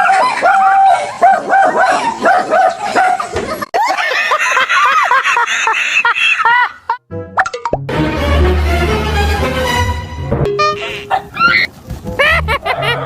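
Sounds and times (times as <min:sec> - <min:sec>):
dog barking and yelping: 0:00.0 - 0:03.4, 0:10.8 - 0:11.7, 0:12.5 - 0:13.0.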